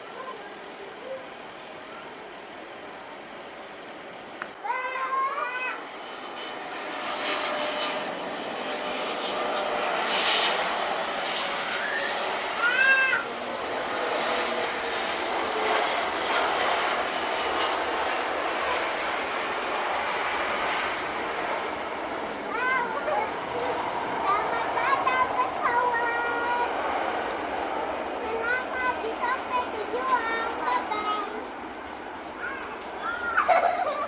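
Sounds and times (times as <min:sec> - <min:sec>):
jet airliner engine rushing: 0:00.0 - 0:34.0
high arching cries: 0:04.6 - 0:06.0, 0:11.4 - 0:34.0.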